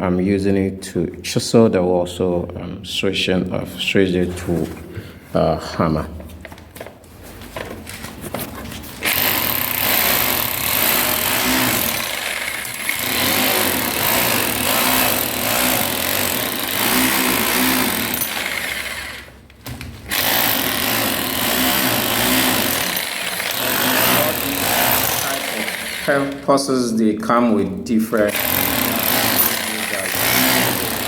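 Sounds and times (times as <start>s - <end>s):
hammer drill chipping masonry: 9.0s - 19.4s, 20.1s - 26.5s, 28.2s - 31.0s.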